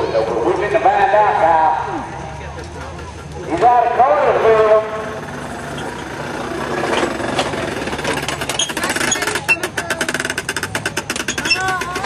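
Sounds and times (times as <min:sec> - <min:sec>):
diesel truck engine running: 0:00.0 - 0:12.0
rapid rattling clatter: 0:05.1 - 0:12.0.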